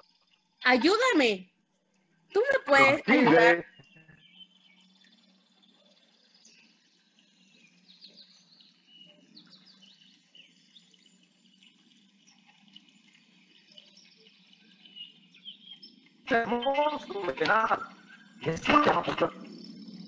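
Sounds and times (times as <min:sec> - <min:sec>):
faint bird chirps: 0:02.7 - 0:20.0.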